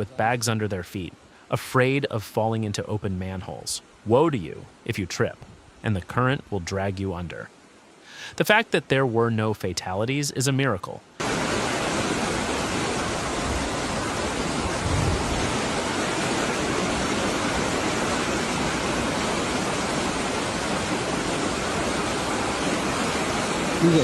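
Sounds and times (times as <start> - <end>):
floodwater rushing: 11.2 - 24.0.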